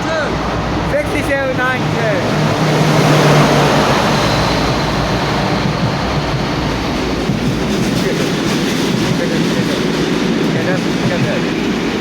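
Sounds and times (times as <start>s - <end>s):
freight train rumbling past: 0.0s - 12.0s
wheels clacking over rail joints: 4.7s - 12.0s.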